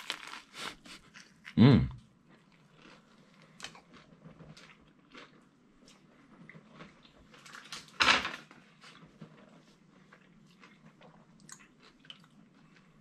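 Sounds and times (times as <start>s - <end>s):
person chewing: 0.0s - 6.0s, 10.0s - 13.0s.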